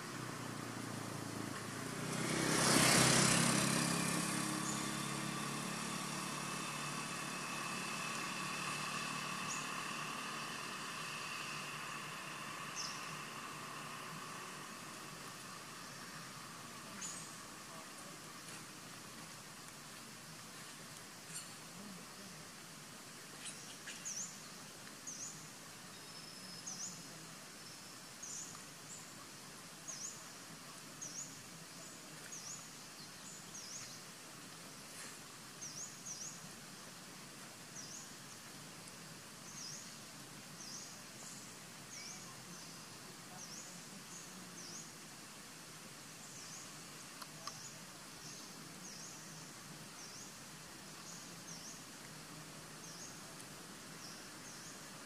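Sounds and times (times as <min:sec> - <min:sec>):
outdoor hiss: 0:00.0 - 0:55.0
bird chirping: 0:07.2 - 0:18.1, 0:21.3 - 0:21.6, 0:23.4 - 0:29.1.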